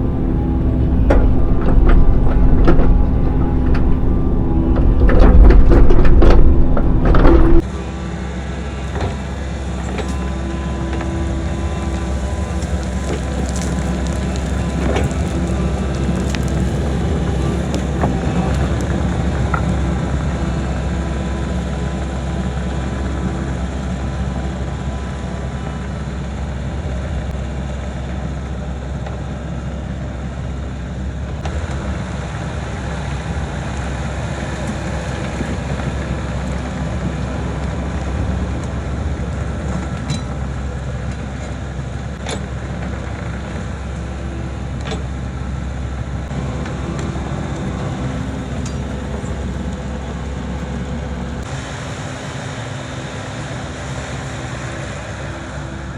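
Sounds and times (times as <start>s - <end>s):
sharp clicks or knocks: 0.0s - 7.6s
excavator diesel engine running: 0.0s - 55.9s.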